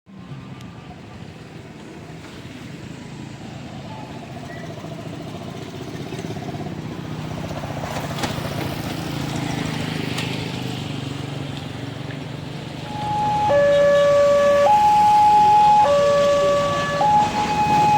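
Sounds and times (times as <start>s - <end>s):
vehicles passing: 0.1s - 17.9s.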